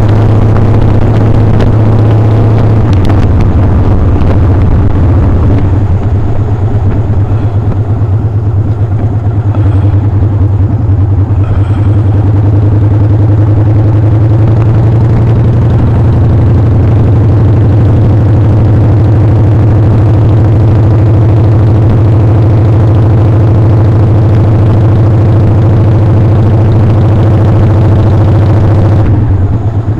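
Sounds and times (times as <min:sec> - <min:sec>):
motorcycle engine humming: 0:00.0 - 0:29.9.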